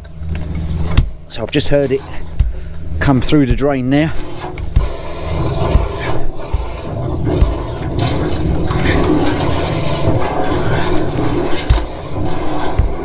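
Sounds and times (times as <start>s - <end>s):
water rushing through pipe: 0.0s - 13.0s
sharp low thumps: 2.3s - 3.8s, 5.7s - 8.7s.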